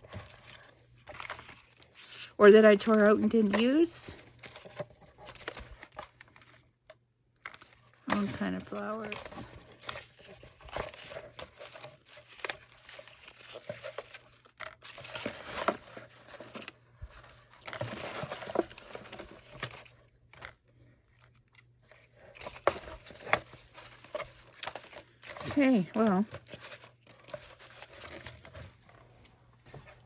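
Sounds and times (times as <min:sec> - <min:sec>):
paper rustling and crinkling: 0:00.0 - 0:06.7, 0:07.4 - 0:30.0.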